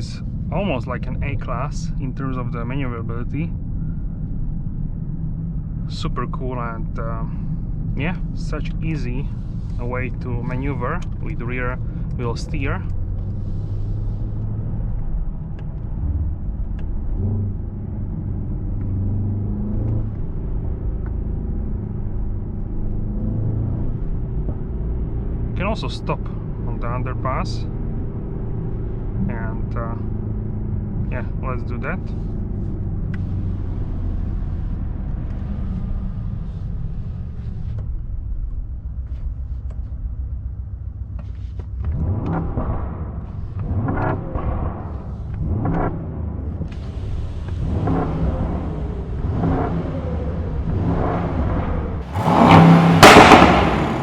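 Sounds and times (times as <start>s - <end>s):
car engine at low revs: 0.0s - 54.0s
road noise: 0.0s - 54.0s
sharp exhaust cracks: 52.0s - 54.0s.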